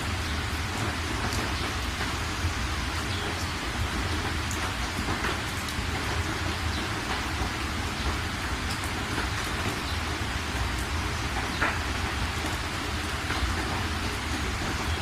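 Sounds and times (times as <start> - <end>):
heavy rain hissing: 0.0 - 15.0
raindrop ticks: 0.0 - 15.0.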